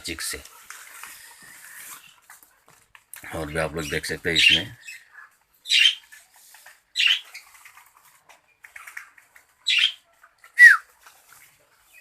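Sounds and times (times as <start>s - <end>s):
parrots squawking: 3.8s - 6.1s, 7.0s - 7.4s, 9.6s - 10.0s.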